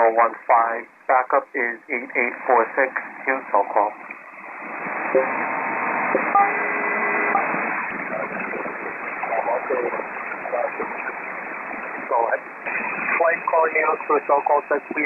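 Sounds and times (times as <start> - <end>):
radio static hissing: 0.0 - 15.0
radio tone pairs: 1.2 - 15.0
faint garbled voices: 8.0 - 15.0.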